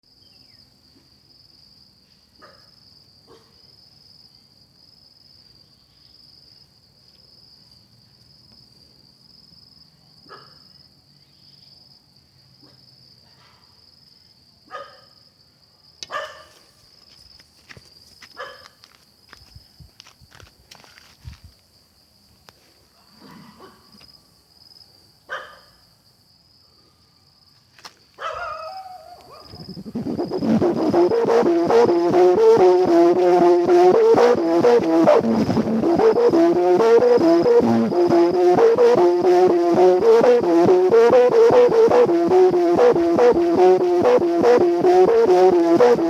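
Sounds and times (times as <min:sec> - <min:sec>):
pulsing insect chirping: 0:29.4 - 0:46.0
kite hummer droning: 0:29.5 - 0:46.0.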